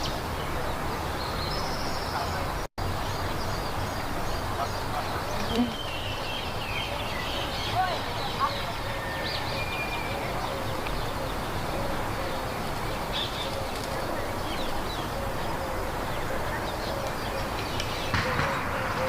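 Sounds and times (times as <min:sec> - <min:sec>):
small birds chirping: 0:00.0 - 0:19.0
steady background hiss: 0:00.0 - 0:19.0.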